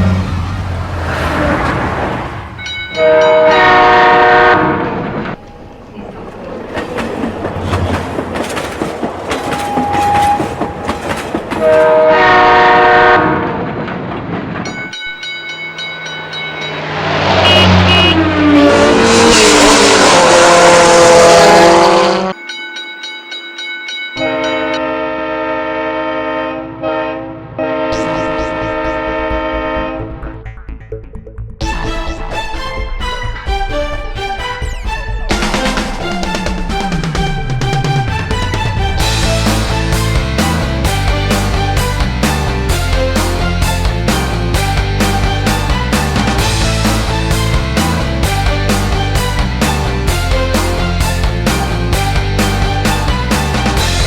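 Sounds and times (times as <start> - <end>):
rumble and clatter of moving train: 0.0 - 22.4, 31.6 - 54.0
train horn blasts: 3.0 - 5.0, 9.4 - 13.6, 17.0 - 22.4, 24.2 - 30.2.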